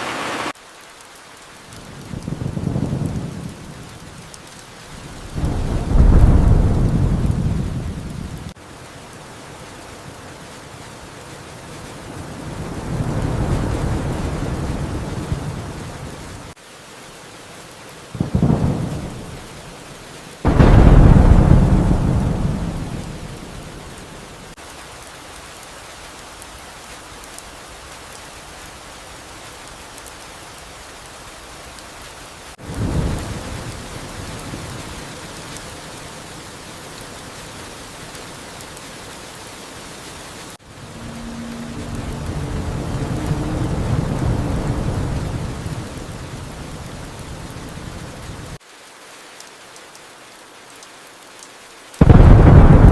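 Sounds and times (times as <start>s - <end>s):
rain hiss: 0.0s - 52.9s
thunder rolling: 1.8s - 16.6s, 18.2s - 19.5s, 20.5s - 24.4s, 40.6s - 48.6s, 52.0s - 52.9s
thunder crack: 4.9s - 10.0s, 10.8s - 16.6s, 20.5s - 24.3s, 40.6s - 48.6s, 52.0s - 52.9s.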